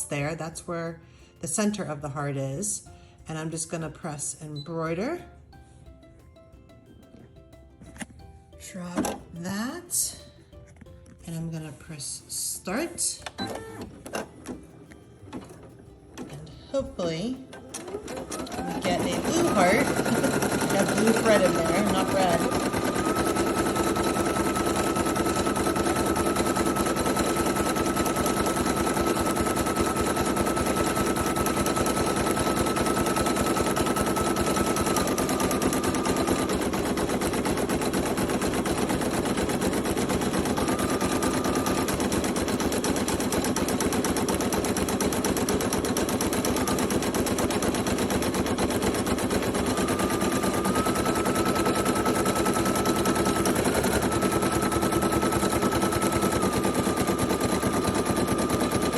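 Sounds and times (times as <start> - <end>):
embroidery machine needle clatter: 17.2 - 58.9.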